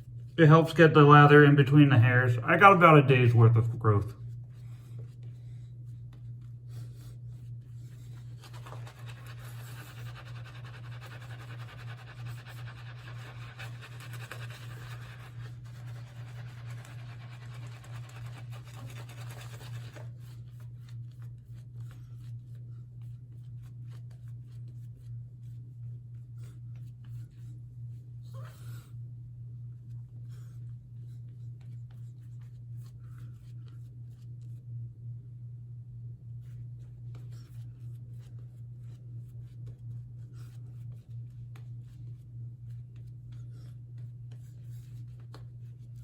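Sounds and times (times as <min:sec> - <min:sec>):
steady low hum: 0:00.0 - 0:46.0
shaving brush scratchy brushing: 0:08.3 - 0:20.7.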